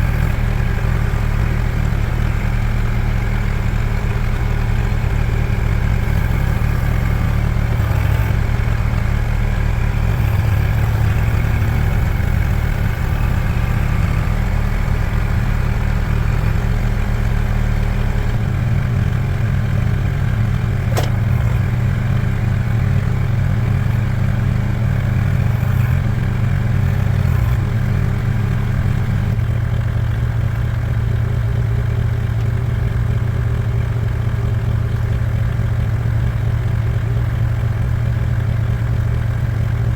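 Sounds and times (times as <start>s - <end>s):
engine humming: 0.0s - 39.9s
sharp click: 20.9s - 21.4s.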